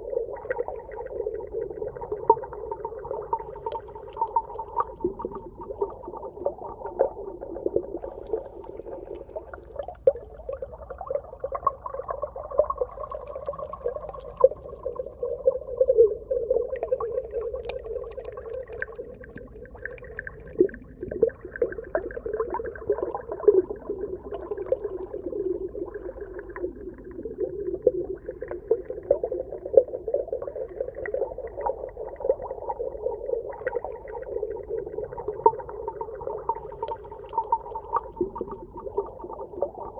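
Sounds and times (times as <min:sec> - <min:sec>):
muffled underwater water sound: 0:00.0 - 0:39.9
small underwater clicks and pops: 0:02.1 - 0:07.1, 0:16.7 - 0:22.3, 0:34.9 - 0:39.9.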